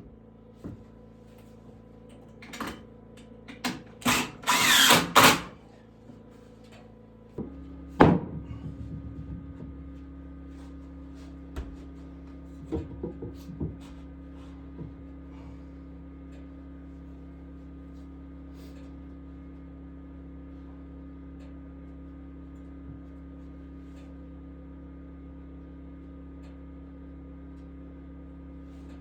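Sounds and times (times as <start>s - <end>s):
power drill: 3.6s - 5.6s
steady low hum: 5.5s - 29.0s.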